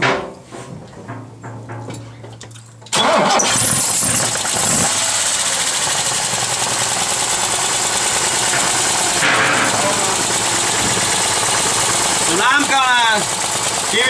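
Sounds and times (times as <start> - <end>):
car engine starting and running: 2.9 - 14.0.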